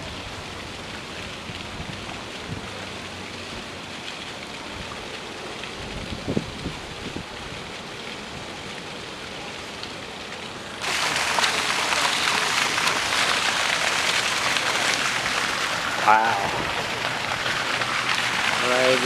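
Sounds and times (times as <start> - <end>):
rain hissing: 0.0 - 19.0.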